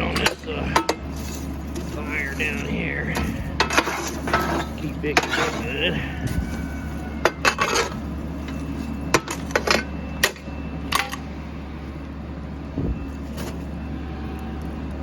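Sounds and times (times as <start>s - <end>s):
metal clanks: 0.0s - 6.5s, 7.2s - 11.3s
steady low hum: 0.0s - 15.0s.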